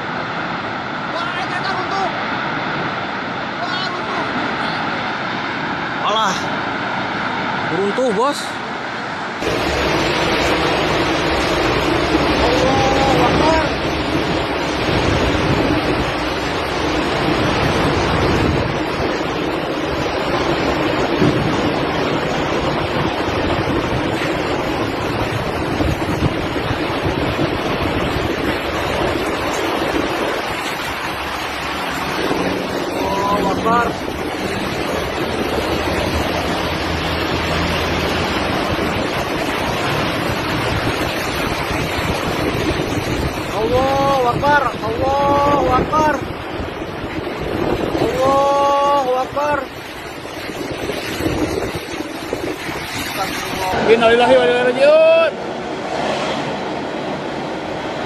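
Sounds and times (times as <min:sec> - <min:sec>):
strong wind buffeting microphone: 0:00.0 - 0:58.0.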